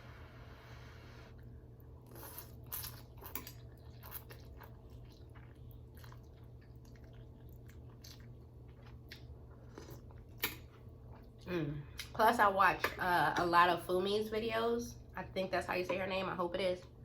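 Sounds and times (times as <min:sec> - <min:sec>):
wet chewing and slurping: 0:01.4 - 0:11.5.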